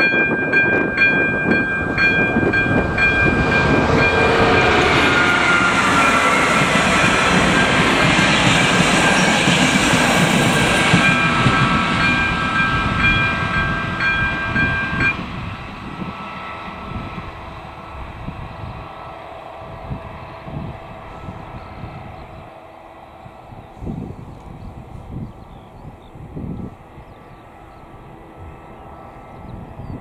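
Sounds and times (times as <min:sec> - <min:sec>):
crossing warning bell ringing: 0:00.0 - 0:19.2
train passing: 0:00.0 - 0:30.0.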